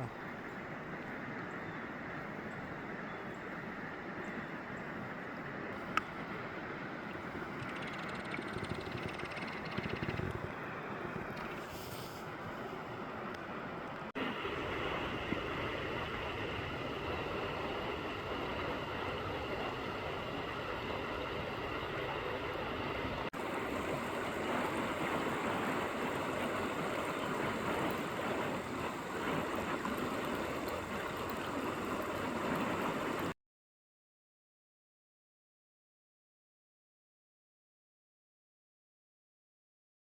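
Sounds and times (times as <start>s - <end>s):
river water rushing: 12.8s - 33.3s.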